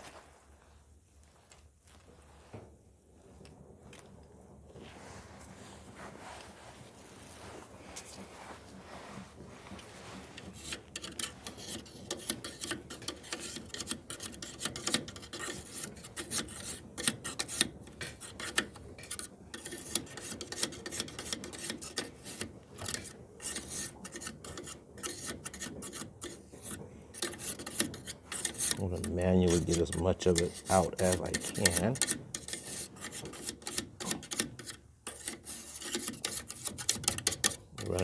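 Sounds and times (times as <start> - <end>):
scraping lint by hand: 0.0 - 2.7, 4.7 - 38.0.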